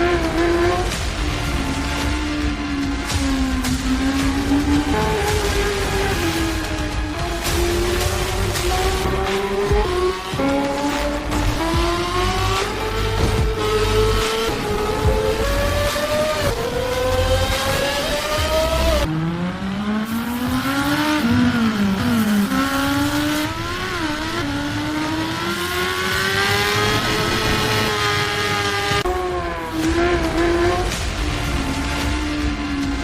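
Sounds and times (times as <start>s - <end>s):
motorcycle engine accelerating: 0.0s - 33.0s.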